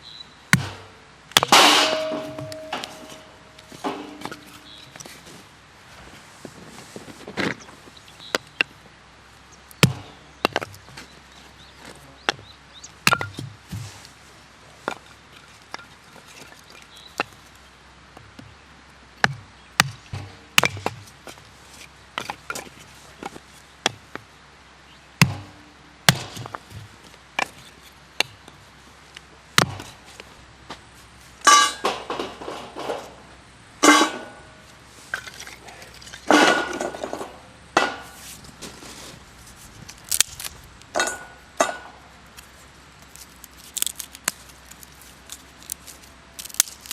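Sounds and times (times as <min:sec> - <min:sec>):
firewood chopping cracks: 0:00.5 - 0:03.2, 0:09.7 - 0:11.1, 0:11.8 - 0:13.8, 0:19.2 - 0:21.4, 0:25.2 - 0:27.6, 0:29.6 - 0:30.0, 0:39.8 - 0:42.0, 0:43.0 - 0:46.9.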